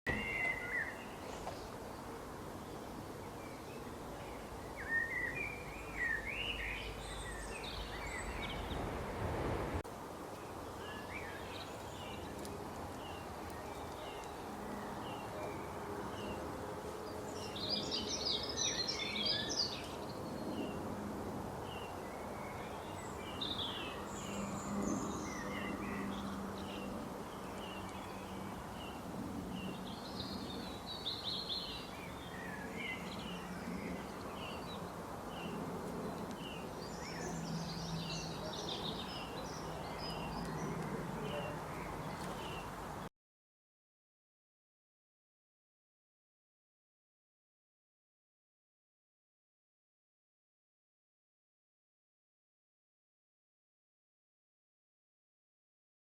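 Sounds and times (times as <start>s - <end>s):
small birds chirping: 0.1s - 9.0s, 10.3s - 16.5s, 21.6s - 43.0s
outdoor background noise: 0.1s - 43.1s
low rumble: 7.7s - 9.8s.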